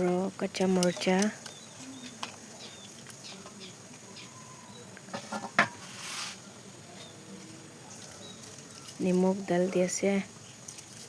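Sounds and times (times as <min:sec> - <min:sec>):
rustling scrape: 0:05.1 - 0:06.5.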